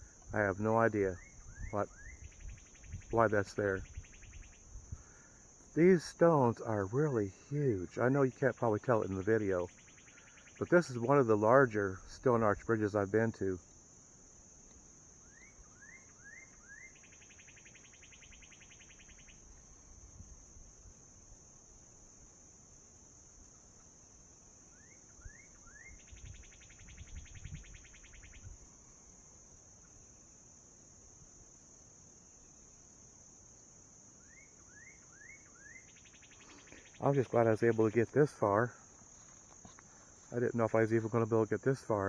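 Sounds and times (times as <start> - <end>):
songbird singing with buzzy trill: 0.0 - 13.7, 14.7 - 20.8, 24.6 - 29.0, 34.2 - 42.0
crickets chirping: 0.0 - 42.0.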